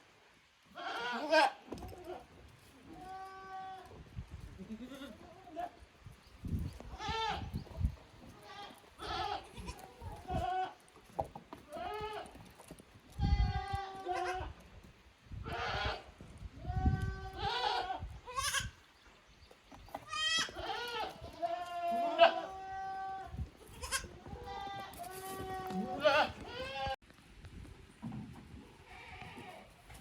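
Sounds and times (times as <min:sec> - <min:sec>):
goats bleating: 0:00.7 - 0:03.9, 0:04.6 - 0:05.8, 0:08.3 - 0:10.8, 0:11.7 - 0:12.4, 0:13.2 - 0:14.6, 0:15.5 - 0:18.8, 0:20.0 - 0:27.0.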